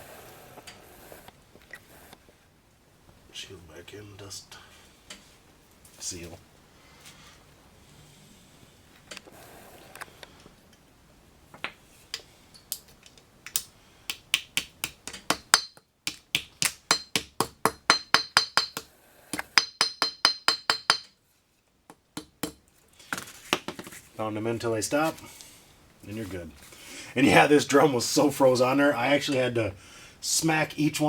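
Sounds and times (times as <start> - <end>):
hammer tapping metal: 14.1 - 21.2, 21.9 - 22.6.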